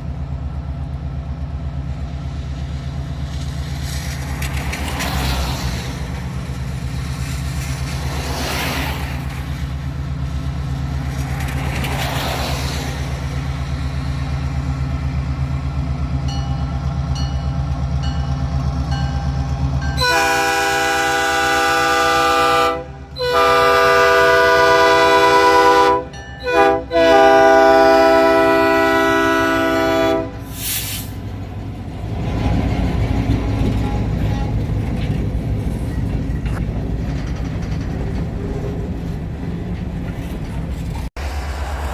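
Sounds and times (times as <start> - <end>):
train rumbling: 0.0 - 41.9
train horn chord: 19.9 - 30.6.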